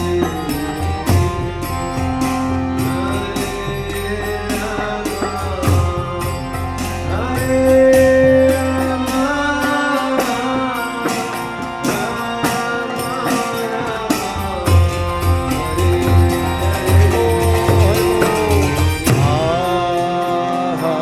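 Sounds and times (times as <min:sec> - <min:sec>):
hand cymbals striking: 0:00.0 - 0:21.0
harmonium drone: 0:00.0 - 0:21.0
voices chanting: 0:00.0 - 0:21.0
deep drum: 0:14.6 - 0:19.8.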